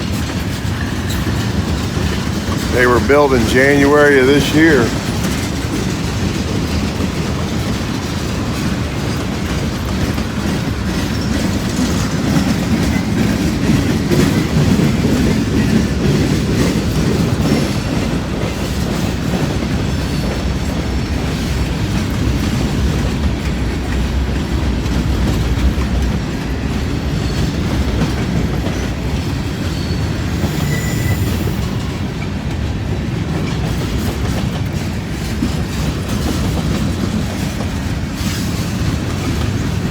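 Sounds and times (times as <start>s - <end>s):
clickety-clack over rail joints: 0.0s - 39.9s
freight train wheels rumbling on rails: 0.0s - 39.9s
faint wheel squeal: 29.7s - 31.8s.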